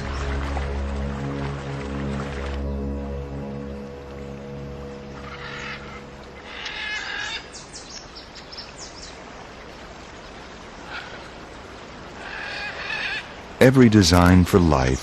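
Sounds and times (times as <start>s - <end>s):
birds harsh rasping calls: 5.1s - 9.0s, 12.2s - 13.5s.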